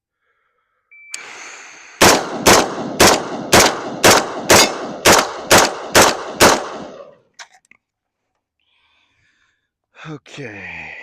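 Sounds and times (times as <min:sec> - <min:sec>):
rifle shots with ringing echo: 0:02.0 - 0:07.2.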